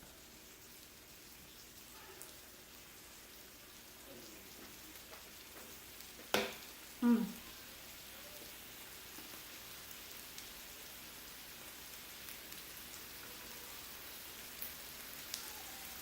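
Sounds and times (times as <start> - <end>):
meat sizzling on a grill: 0.0 - 16.0.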